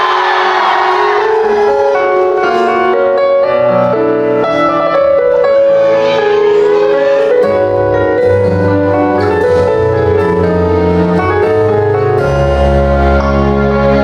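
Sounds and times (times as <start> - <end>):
piano: 0.0 - 14.0
live band playing instrumental: 3.9 - 14.0
bass: 7.6 - 14.0.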